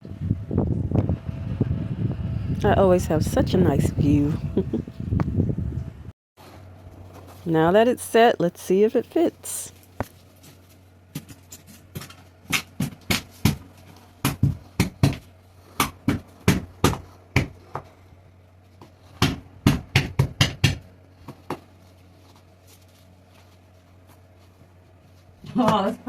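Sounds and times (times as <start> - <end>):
knocks and thumps on fiberglass: 11.9 - 15.2, 15.8 - 17.8, 19.2 - 21.6.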